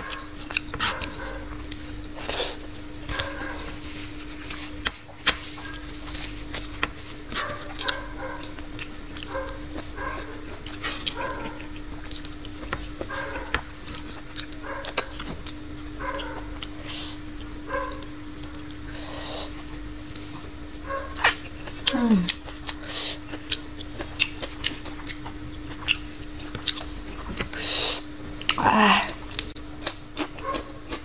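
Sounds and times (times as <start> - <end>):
faint steady hum: 0.0 - 31.0
wet chewing and lip smacks: 4.8 - 18.8, 21.1 - 28.6, 29.3 - 31.0.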